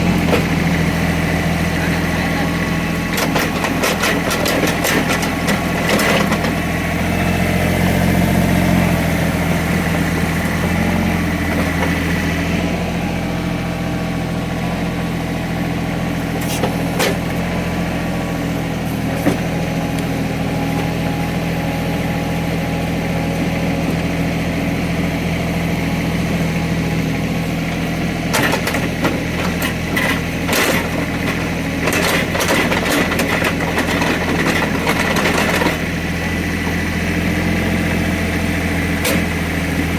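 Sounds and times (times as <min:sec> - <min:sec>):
excavator diesel engine running: 0:00.0 - 0:39.9
clanks and scraping: 0:03.1 - 0:06.6, 0:16.4 - 0:17.4, 0:28.3 - 0:35.8.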